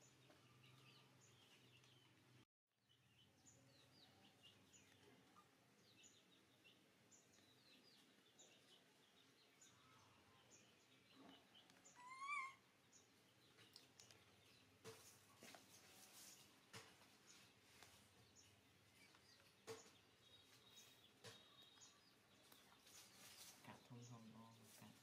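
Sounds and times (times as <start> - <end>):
faint bird chirps: 2.8 - 14.6, 17.3 - 25.0
wavering high bird call: 11.9 - 12.6.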